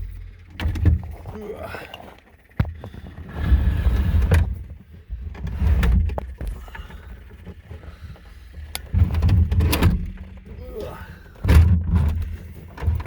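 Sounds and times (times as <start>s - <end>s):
clunks and knocks in cab: 0.0s - 1.4s, 8.8s - 10.5s, 11.3s - 13.0s.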